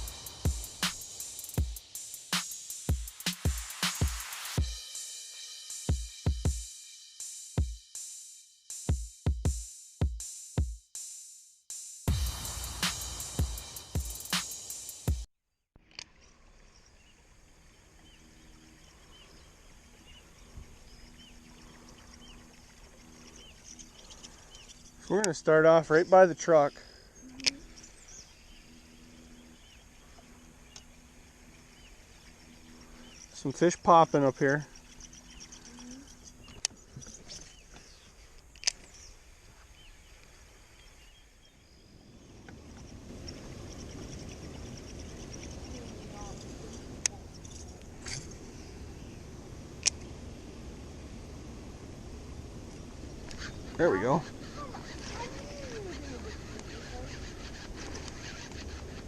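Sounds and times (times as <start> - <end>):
low rushing noise: 0.0 - 4.7, 12.1 - 15.1
bird chirping: 17.9 - 39.2, 40.8 - 49.2, 53.3 - 59.0.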